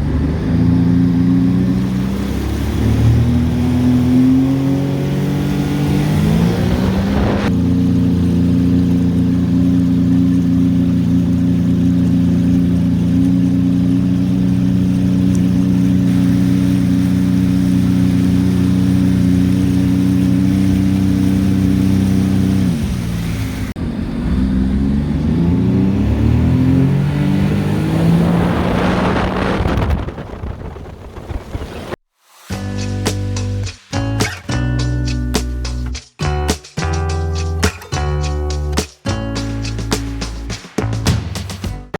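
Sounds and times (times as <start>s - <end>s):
personal watercraft engine running: 0.0s - 32.0s.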